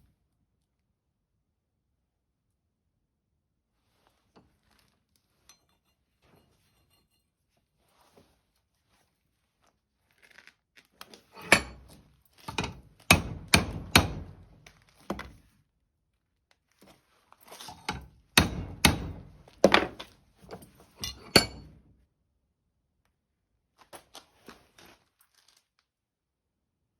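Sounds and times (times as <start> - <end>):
hard hammering knocks: 12.5 - 14.5, 18.4 - 20.0.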